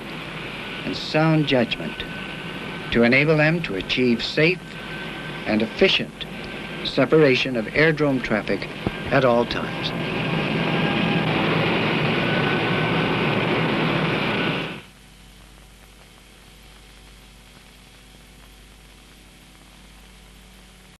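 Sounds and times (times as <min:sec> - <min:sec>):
aircraft engine noise: 0:00.0 - 0:15.0
faint hiss and low hum: 0:00.0 - 0:21.0.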